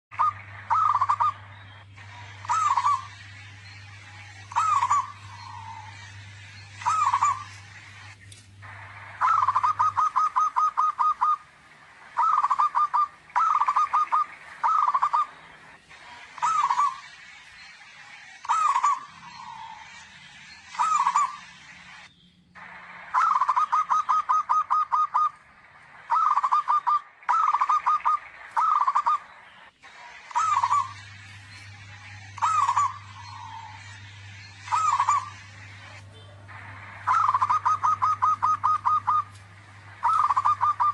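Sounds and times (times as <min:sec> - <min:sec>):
low hum: 0:00.1 - 0:40.9
dove cooing: 0:00.2 - 0:03.2, 0:04.5 - 0:06.2, 0:06.8 - 0:07.9, 0:08.7 - 0:15.4, 0:16.0 - 0:17.1, 0:18.5 - 0:19.9, 0:20.7 - 0:21.4, 0:22.6 - 0:25.4, 0:26.1 - 0:29.3, 0:30.0 - 0:31.3, 0:32.3 - 0:40.9.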